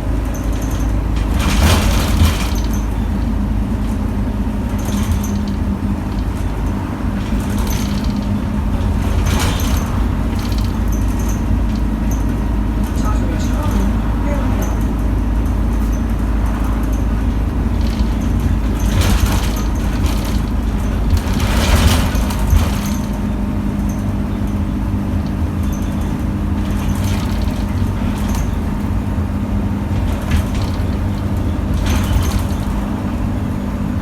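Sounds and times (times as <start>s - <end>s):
bus engine and road drone: 0.0s - 34.0s
rattles and knocks: 0.0s - 34.0s.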